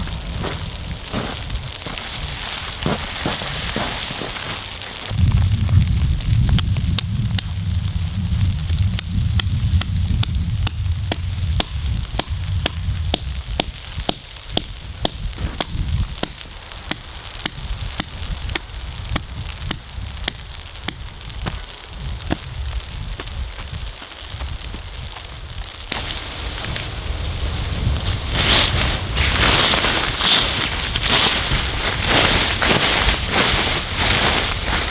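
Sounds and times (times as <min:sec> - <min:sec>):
wind-like hiss: 0:00.0 - 0:09.3, 0:18.8 - 0:34.9.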